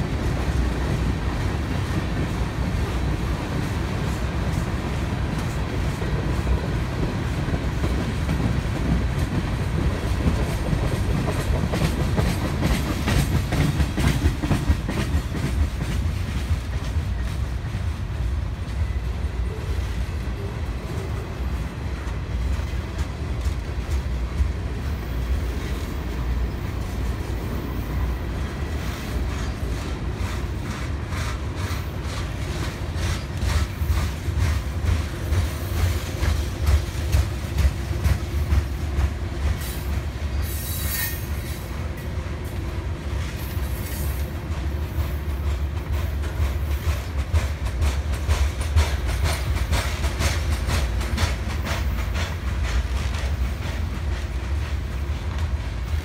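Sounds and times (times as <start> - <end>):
wheels clacking over rail joints: 0.0 - 18.0, 20.3 - 56.0
freight train rumbling past: 0.0 - 56.0.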